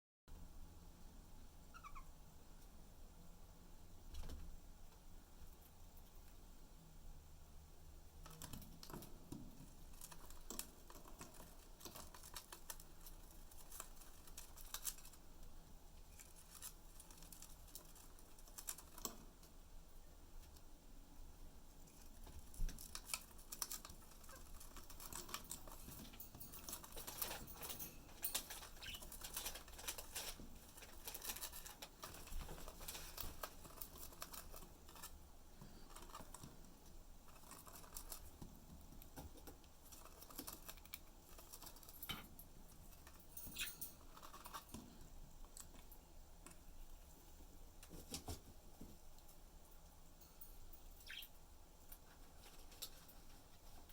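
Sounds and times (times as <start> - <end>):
bird chewing cardboard: 8.3 - 15.2, 28.3 - 42.0.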